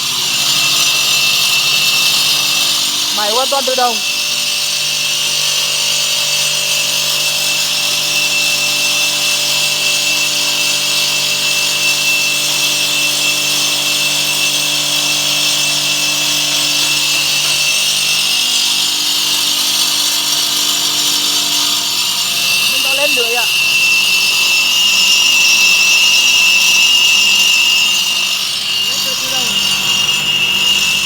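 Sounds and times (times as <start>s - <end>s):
electric motor hum: 0.0s - 6.9s, 13.7s - 24.9s, 26.0s - 31.0s
stone-cutting blade grinding: 0.0s - 31.0s.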